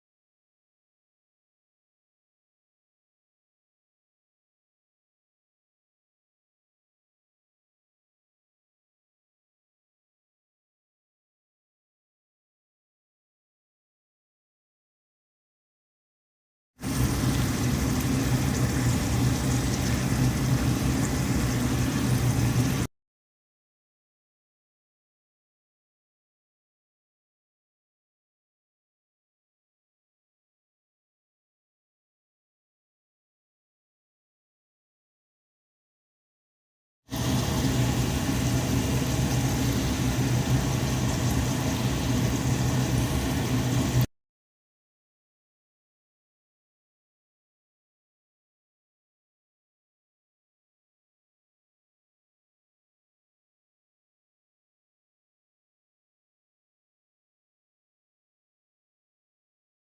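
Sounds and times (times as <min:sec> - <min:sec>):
steady mechanical hum: 0:16.8 - 0:22.9, 0:37.1 - 0:44.1.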